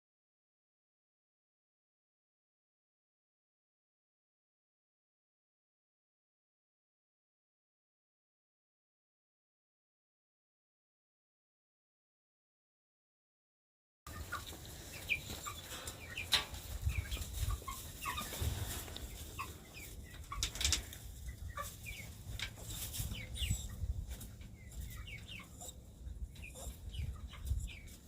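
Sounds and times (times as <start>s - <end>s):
rustles: 14.1s - 25.8s
chickens clucking: 14.1s - 28.0s
chicks chirping: 14.1s - 28.0s.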